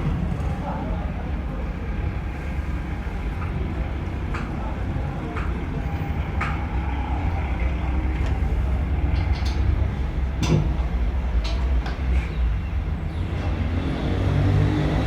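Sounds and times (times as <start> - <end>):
engine rumbling: 0.0 - 15.0.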